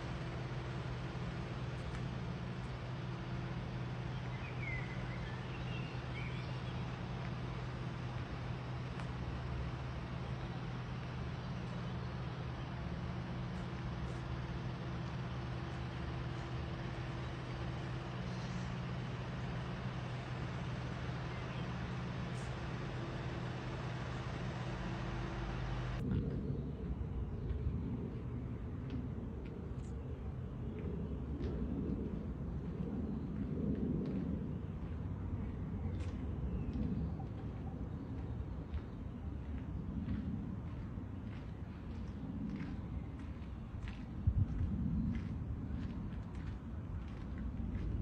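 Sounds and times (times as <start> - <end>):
excavator low hum: 0.0 - 48.0
bird chirps: 4.1 - 6.9.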